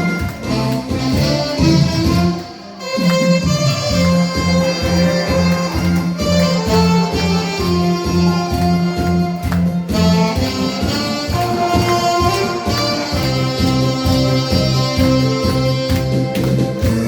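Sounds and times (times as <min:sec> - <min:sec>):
backing track with bass beat: 0:00.0 - 0:17.0
saxophone melody: 0:00.0 - 0:17.0.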